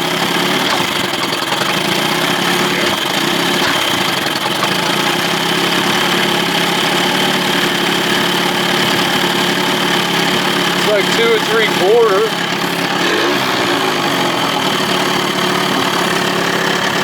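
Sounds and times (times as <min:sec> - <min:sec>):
outboard motor idling: 0:00.0 - 0:17.0
motor sneezing: 0:02.0 - 0:04.8, 0:10.8 - 0:17.0.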